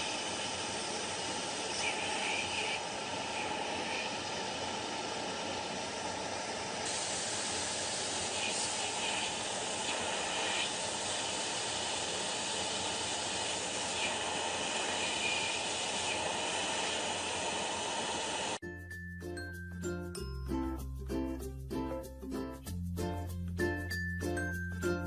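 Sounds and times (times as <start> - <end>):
steady hissing noise: 0.0 - 18.6
chiming music: 18.6 - 22.1, 23.2 - 25.0.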